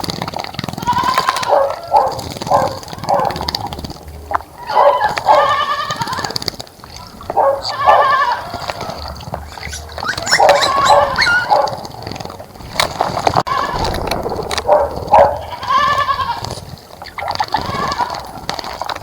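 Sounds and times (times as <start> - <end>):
goats bleating: 0.8 - 1.5, 4.6 - 6.4, 7.7 - 9.2.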